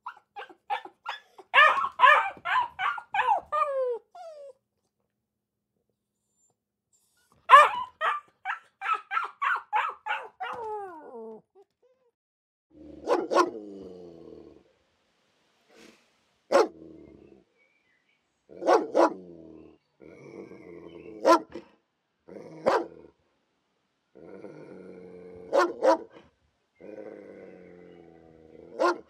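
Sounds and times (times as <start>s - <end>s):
dog barking: 0.0s - 3.7s, 7.5s - 10.7s, 13.0s - 13.6s, 16.5s - 16.7s, 18.6s - 19.2s, 21.2s - 21.6s, 22.6s - 22.9s, 25.5s - 26.2s, 28.8s - 29.0s
dog whining: 0.0s - 4.6s, 6.2s - 12.1s
dog growling: 12.7s - 14.7s, 18.6s - 21.2s, 24.2s - 25.8s, 26.8s - 28.9s.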